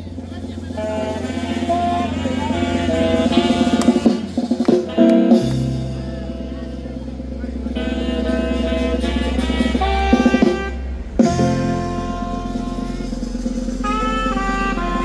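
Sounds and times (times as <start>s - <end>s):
drums: 0.0s - 15.0s
horn melody: 0.0s - 15.0s
low hum: 4.9s - 15.0s.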